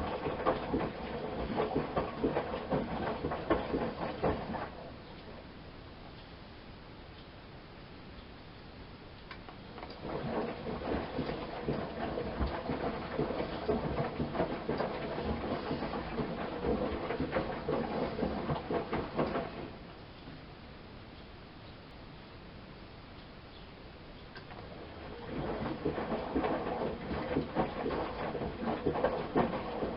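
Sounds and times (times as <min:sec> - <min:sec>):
washing machine drum turning: 0:00.0 - 0:04.9, 0:09.8 - 0:19.9, 0:24.5 - 0:29.9
laundry tumbling with small knocks: 0:00.0 - 0:05.0, 0:09.8 - 0:20.0, 0:24.4 - 0:29.9.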